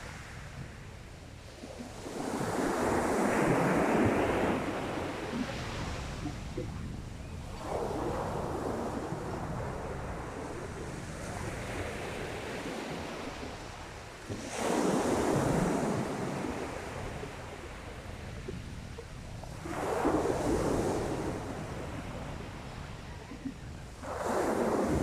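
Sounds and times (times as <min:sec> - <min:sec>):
wind on microphone: 0:00.0 - 0:25.0
waves washing onto shingle: 0:24.0 - 0:25.0.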